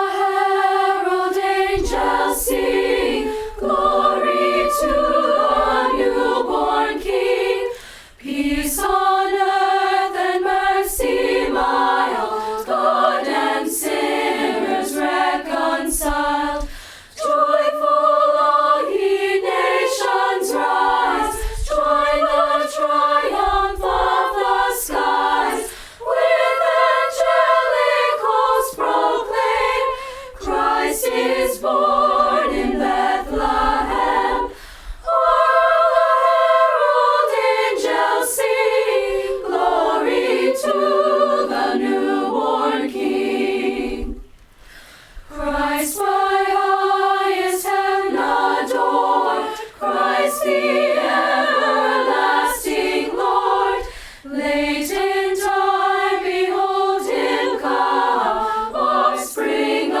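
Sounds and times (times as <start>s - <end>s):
choir singing a cappella: 0.0s - 60.0s.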